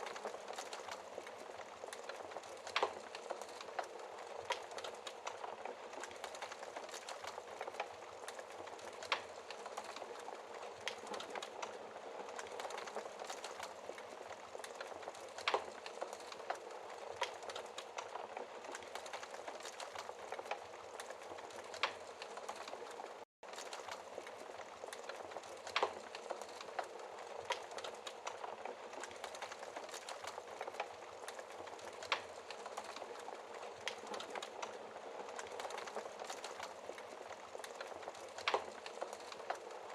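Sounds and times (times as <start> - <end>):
fire popping: 0.0 - 39.9
wood fire crackling: 0.0 - 39.9.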